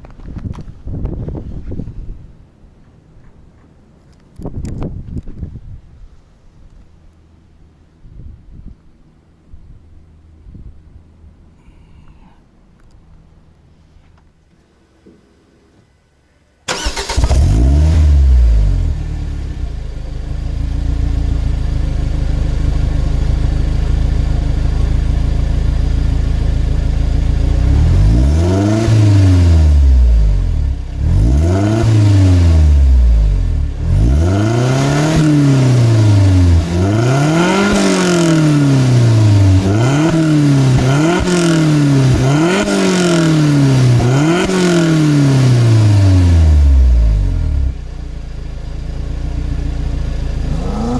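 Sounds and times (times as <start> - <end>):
car engine starting and revving: 16.7 - 47.8, 49.4 - 50.9.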